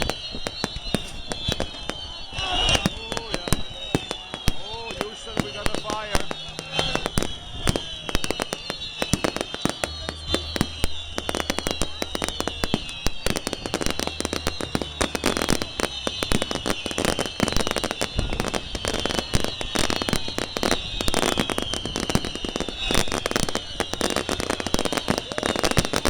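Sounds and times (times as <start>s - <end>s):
fireworks cracking and banging: 0.0s - 26.0s
high wavering whistle: 0.0s - 26.0s.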